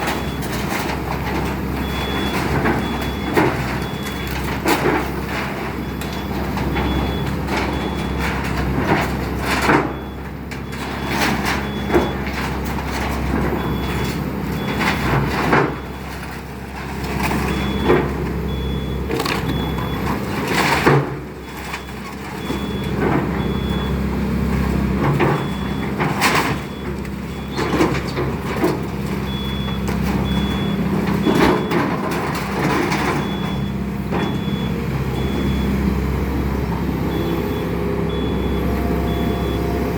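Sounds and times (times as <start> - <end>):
demolition debris crashing: 0.0 - 36.8
excavator engine running: 0.0 - 39.9
high warning beep: 37.1 - 39.7.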